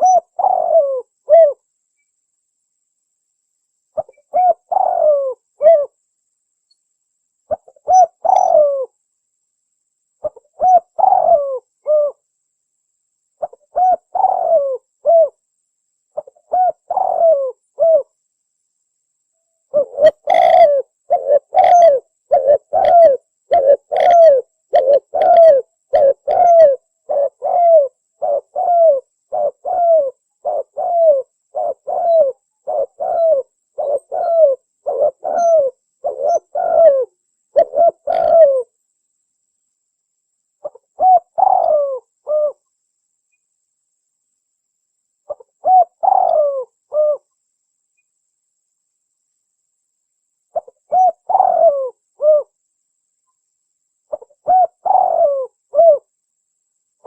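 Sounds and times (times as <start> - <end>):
dove cooing: 0.0 - 1.6, 4.0 - 6.0, 7.5 - 8.9, 10.2 - 12.2, 13.4 - 15.4, 16.2 - 18.1, 19.7 - 38.7, 40.6 - 42.6, 45.3 - 47.3, 50.5 - 52.6, 54.1 - 56.1.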